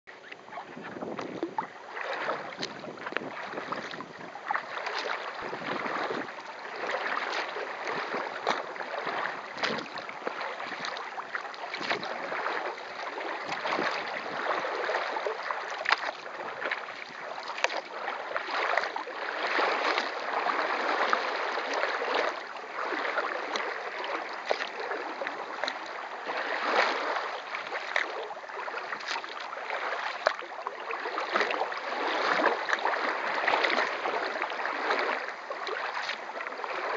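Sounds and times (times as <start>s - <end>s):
rushing water: 0.0s - 36.9s
paddle strokes splashing water: 0.1s - 36.9s
wind noise: 0.4s - 4.4s, 5.2s - 6.3s.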